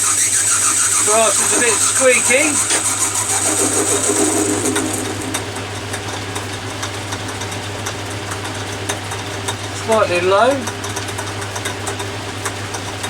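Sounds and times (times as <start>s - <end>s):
high-pitched cutting squeak: 0.0s - 5.6s
metal lathe humming: 0.0s - 7.8s.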